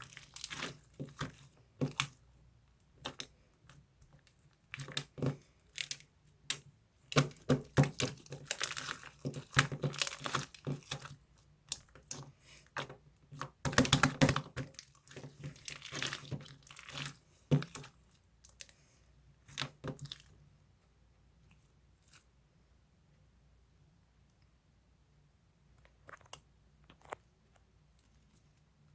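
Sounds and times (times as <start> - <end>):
objects clicking and crinkling: 25.8 - 28.5.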